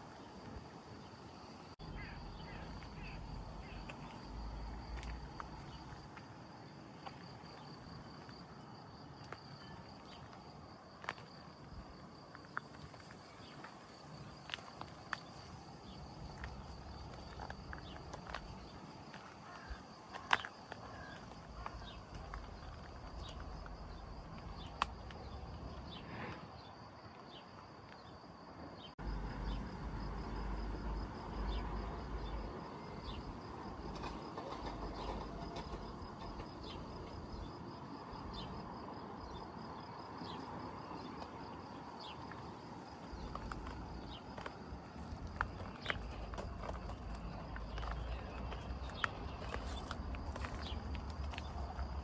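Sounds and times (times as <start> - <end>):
high insect trill: 29.0 - 52.0.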